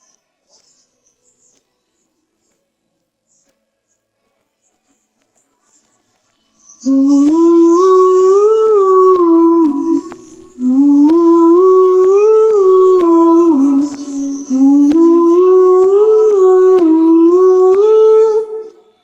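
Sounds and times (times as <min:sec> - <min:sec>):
wordless hummed vocal melody: 0:06.8 - 0:19.0
sharp clicking beat: 0:06.9 - 0:18.4.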